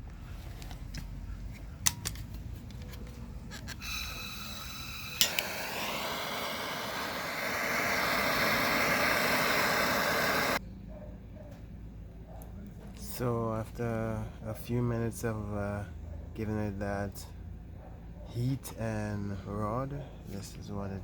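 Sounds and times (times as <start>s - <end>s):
propane torch hissing: 3.7s - 10.6s
sharp click: 5.2s - 5.6s.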